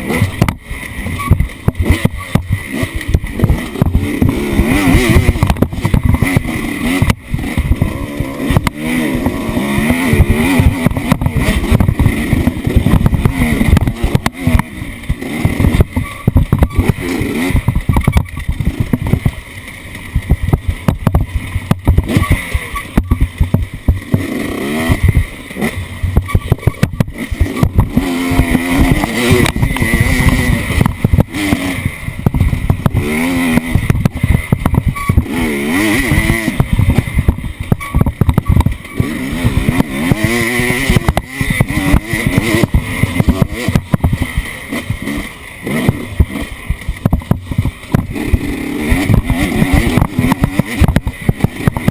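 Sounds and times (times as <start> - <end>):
off-road vehicle engine revving: 0.0 - 51.9.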